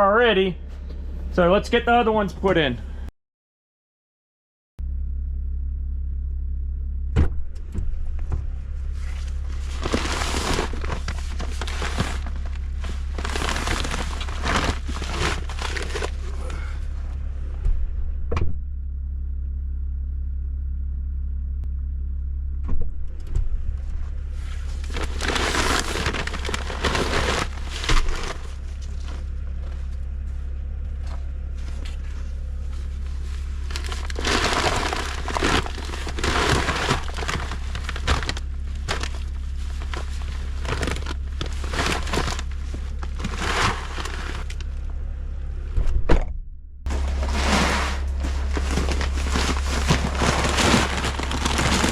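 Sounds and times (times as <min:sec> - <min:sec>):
diesel engine idling: 0:00.0 - 0:03.1, 0:04.8 - 0:45.8, 0:46.5 - 0:51.9
feed bags rustling and crunching: 0:08.9 - 0:16.9, 0:24.4 - 0:44.7, 0:46.9 - 0:51.9.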